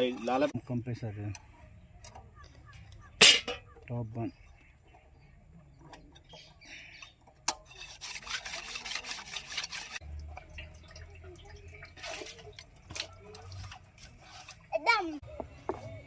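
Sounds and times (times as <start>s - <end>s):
metal scraping on metal: 5.8s - 10.0s.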